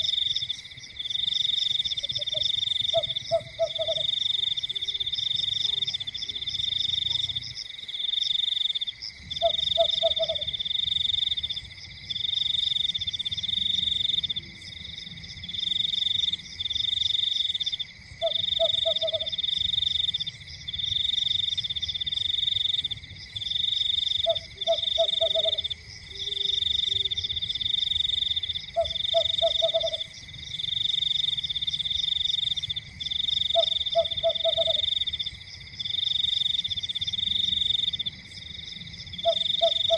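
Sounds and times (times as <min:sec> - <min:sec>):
frog croak: 0:00.0 - 0:39.9
frogs trilling: 0:00.0 - 0:39.9.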